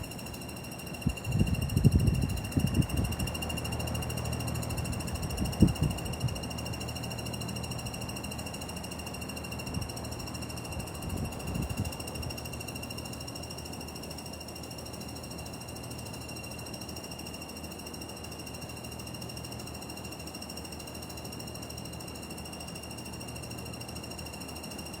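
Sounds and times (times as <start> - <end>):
air conditioner fan ratcheting: 0.0 - 8.6.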